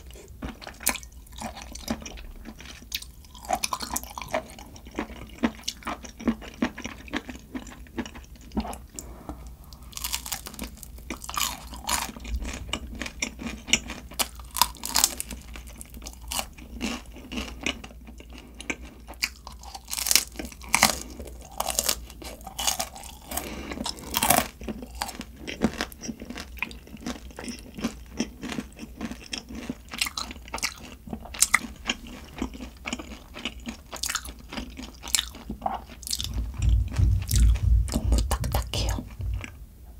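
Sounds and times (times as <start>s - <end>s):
chewing crunchy food: 0.0s - 39.6s.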